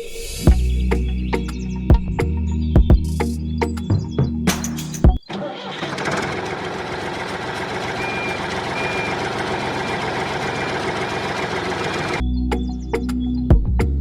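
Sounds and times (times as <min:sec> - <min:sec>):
faint high beep: 0:08.0 - 0:09.2.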